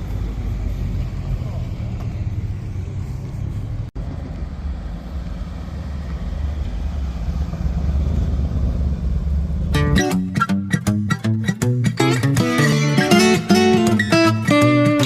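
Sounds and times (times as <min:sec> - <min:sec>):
car engine running: 0:00.0 - 0:10.4.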